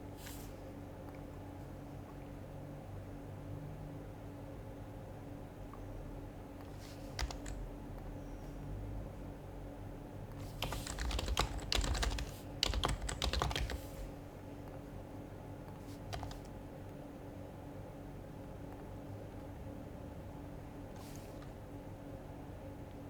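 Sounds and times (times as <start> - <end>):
keyboard typing: 6.6 - 7.6, 10.4 - 14.1, 16.0 - 16.6.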